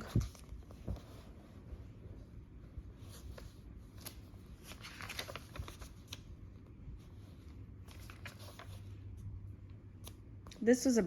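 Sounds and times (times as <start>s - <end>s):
paper pages rustling: 0.0s - 2.0s, 2.8s - 9.3s.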